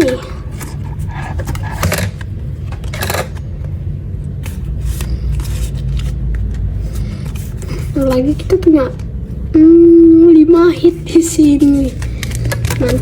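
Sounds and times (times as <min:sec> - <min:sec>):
trading cards rustling: 0:00.0 - 0:09.1, 0:11.1 - 0:13.0.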